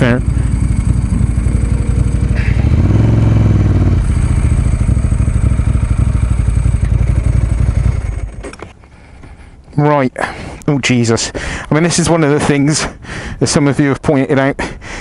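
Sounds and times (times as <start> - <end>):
motorcycle engine idling and revving: 0.0 - 9.0.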